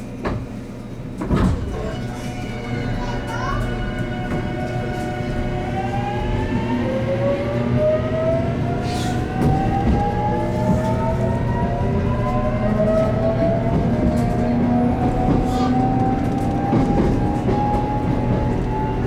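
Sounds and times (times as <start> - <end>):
train running gear rumble: 0.0 - 19.0
electric train motor whine: 3.8 - 19.0.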